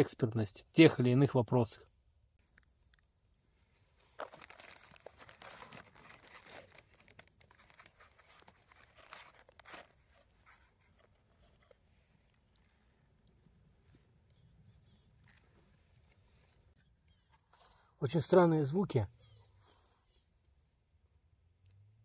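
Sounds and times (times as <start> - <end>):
small irregular clicks: 2.3 - 4.3, 9.4 - 17.4
faint rustling and crackling: 2.4 - 18.3.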